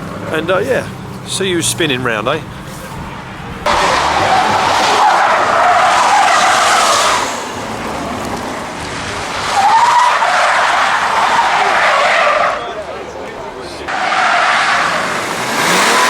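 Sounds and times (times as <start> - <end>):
car tyres screeching: 0.0 - 16.0.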